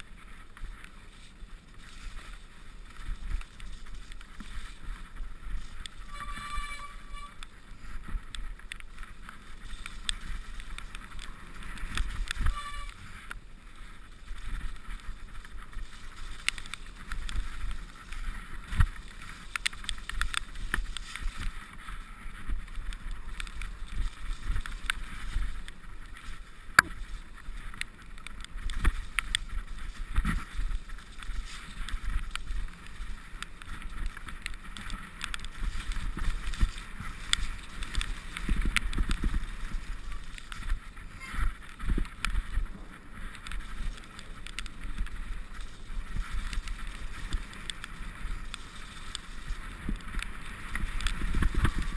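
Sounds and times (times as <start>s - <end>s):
mountain bike rattling over rough ground: 0.0s - 51.9s
wind on microphone: 1.9s - 51.9s
short squeals: 6.0s - 7.4s.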